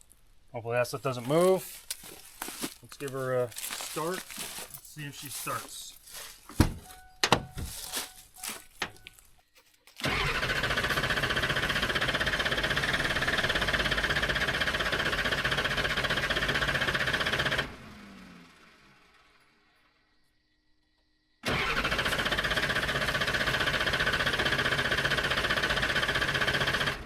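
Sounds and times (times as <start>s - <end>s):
diesel engine cranking: 10.0s - 19.5s, 21.4s - 27.0s
engine spinning down: 10.0s - 20.0s, 21.4s - 27.0s.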